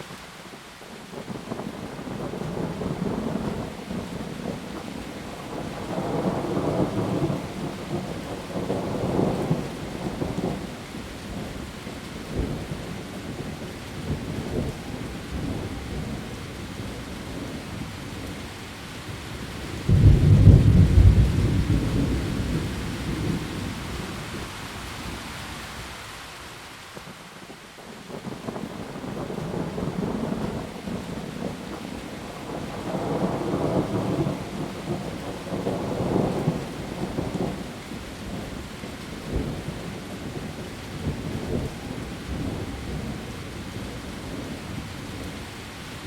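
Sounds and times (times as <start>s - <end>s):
heavy rain on leaves: 0.0s - 46.0s
thunder rumbling: 19.5s - 25.2s, 28.1s - 38.6s.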